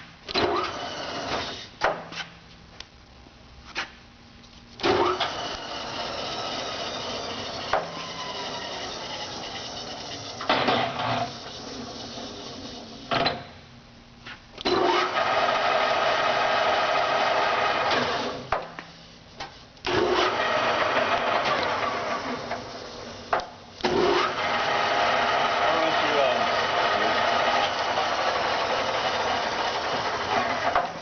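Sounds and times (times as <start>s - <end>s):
lathe gear whine: 4.8s - 13.2s, 14.6s - 18.4s, 19.9s - 30.8s.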